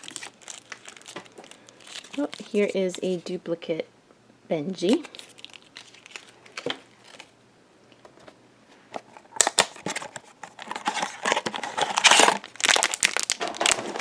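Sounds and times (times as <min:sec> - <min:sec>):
packaging crinkling and tearing: 0:00.0 - 0:03.2, 0:04.9 - 0:07.4, 0:09.2 - 0:14.0.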